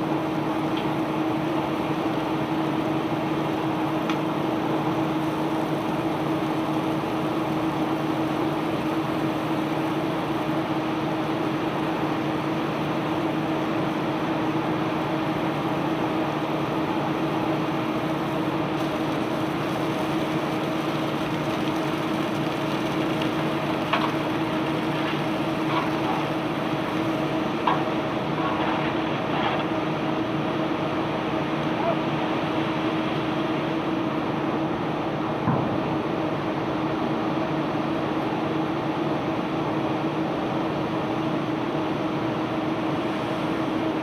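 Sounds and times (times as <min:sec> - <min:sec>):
unloading machinery humming: 0:16.8 - 0:32.4.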